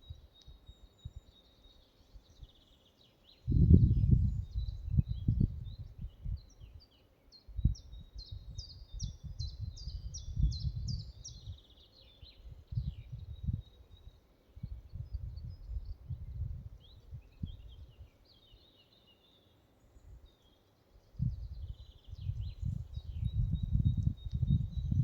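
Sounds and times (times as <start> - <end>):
songbirds singing: 0.0 - 25.0
wind gusts on microphone: 3.4 - 6.8, 7.5 - 11.7, 12.4 - 18.1, 21.1 - 25.0.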